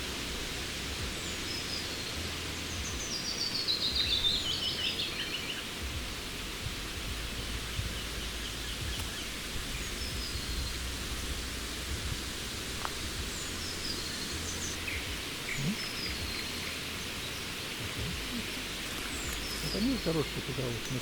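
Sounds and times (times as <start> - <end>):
steady rustling hiss: 0.0 - 21.0
low rumble: 5.8 - 20.9.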